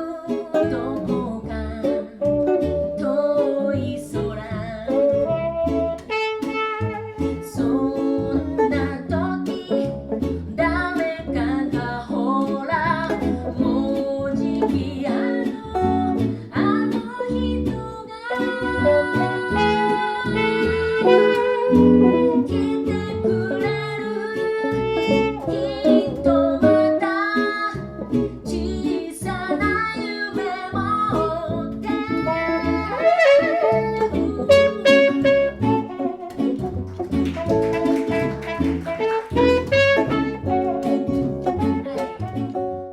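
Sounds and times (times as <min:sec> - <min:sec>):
person singing: 0:00.0 - 0:05.3, 0:07.3 - 0:09.9, 0:10.6 - 0:27.8, 0:28.4 - 0:36.2
live reggae band: 0:00.0 - 0:42.9.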